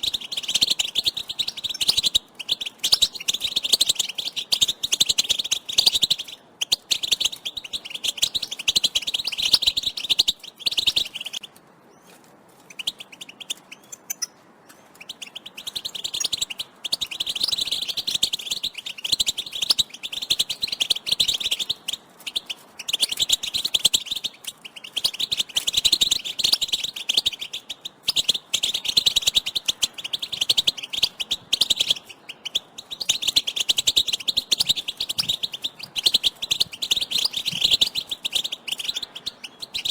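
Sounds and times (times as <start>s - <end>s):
goldfinches twittering: 14.9s - 39.9s.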